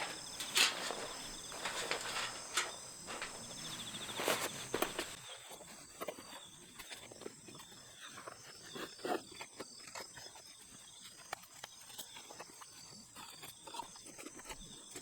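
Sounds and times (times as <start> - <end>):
irregular clicks and knocks: 0.0 - 5.2
insects chirping: 0.0 - 5.6.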